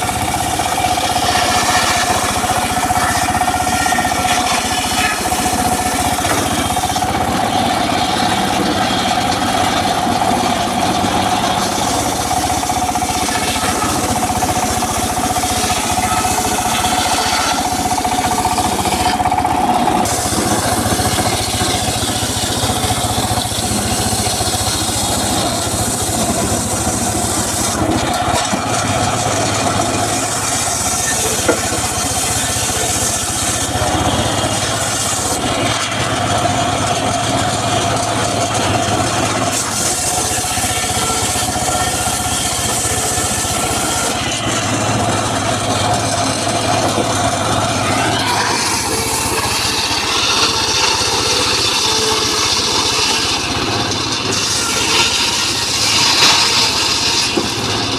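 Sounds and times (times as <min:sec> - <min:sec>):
circular saw whine cutting wood: 0:00.0 - 0:57.9
engine hum: 0:00.0 - 0:57.9.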